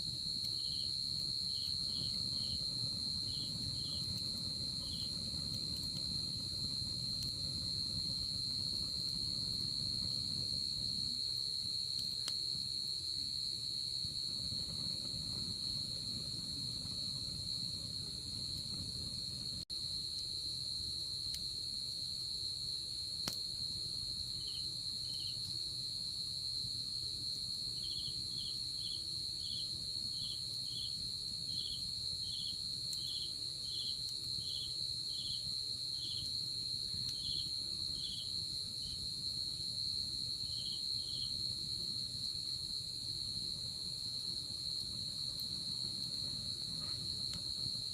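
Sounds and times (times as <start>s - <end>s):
insect chirping: 0.0s - 47.9s.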